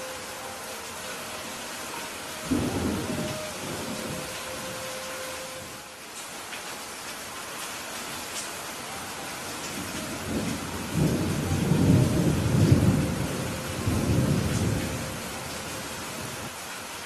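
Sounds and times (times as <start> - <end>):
steady rain falling: 0.0 - 17.0
thunder rumbling: 2.4 - 5.8, 9.6 - 16.5.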